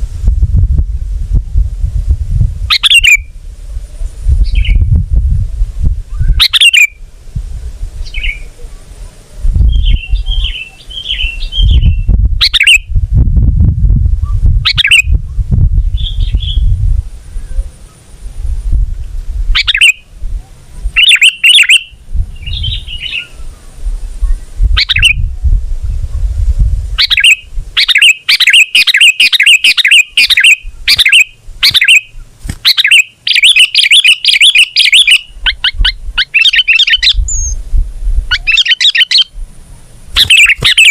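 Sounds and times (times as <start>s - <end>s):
loud low rumble: 0.0s - 2.7s, 11.5s - 19.6s
bulbul calling and chattering: 2.7s - 3.3s, 6.1s - 7.0s, 9.6s - 13.0s, 14.3s - 15.2s, 19.5s - 20.1s, 20.9s - 25.3s, 27.0s - 37.6s, 38.3s - 39.4s, 40.1s - 40.9s.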